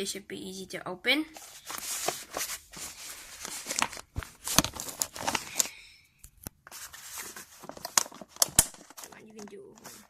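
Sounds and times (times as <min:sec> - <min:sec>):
packaging rustling and tearing: 0:01.4 - 0:05.7, 0:06.6 - 0:10.0.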